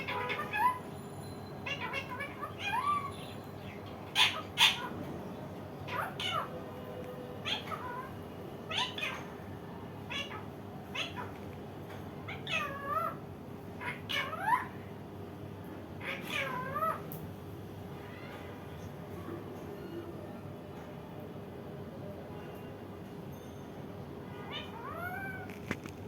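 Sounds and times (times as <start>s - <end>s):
parakeet sharp squawks: 0.0s - 1.0s, 1.6s - 5.0s, 5.9s - 6.5s, 7.4s - 9.4s, 10.1s - 11.4s, 13.8s - 14.8s, 16.0s - 17.0s, 24.4s - 25.5s.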